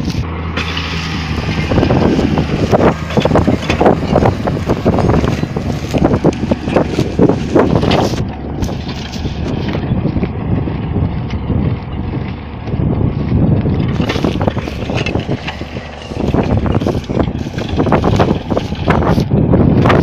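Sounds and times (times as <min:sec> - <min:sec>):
tractor engine under load: 0:00.0 - 0:20.0
wind buffeting microphone: 0:00.0 - 0:20.0
short clatters: 0:13.6 - 0:20.0.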